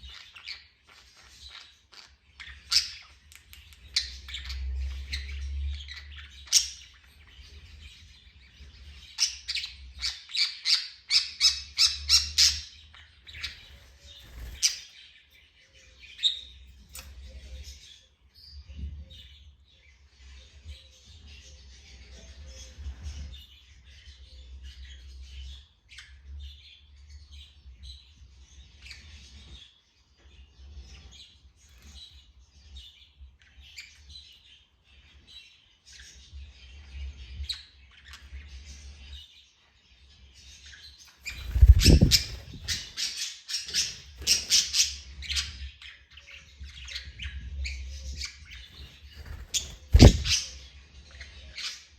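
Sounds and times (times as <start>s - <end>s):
parrot chirping: 41.3s - 42.9s, 49.4s - 50.5s.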